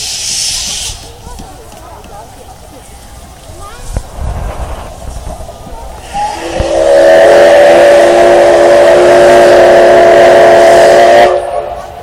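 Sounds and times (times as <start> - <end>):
steam locomotive whistle blowing: 0.0 - 1.0, 6.0 - 12.0.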